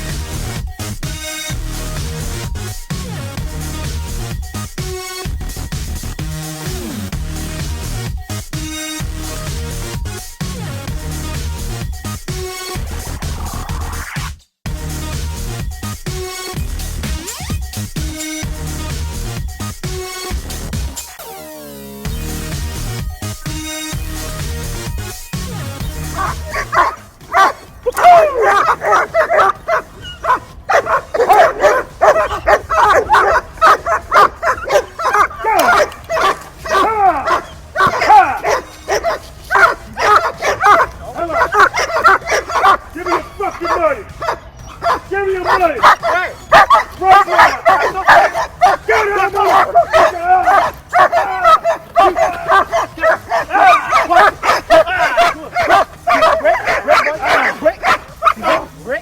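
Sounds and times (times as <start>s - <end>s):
dog barking and yelping: 25.9s - 59.0s.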